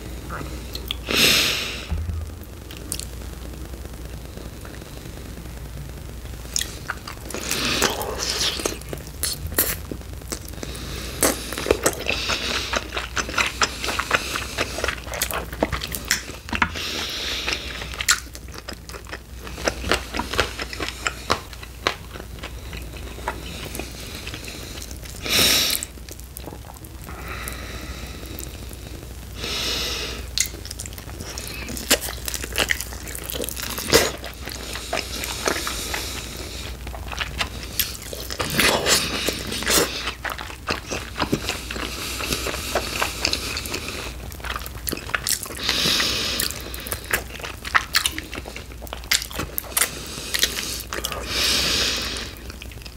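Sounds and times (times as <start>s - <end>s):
crunchy biting and chewing: 6.5s - 27.6s, 30.2s - 52.9s.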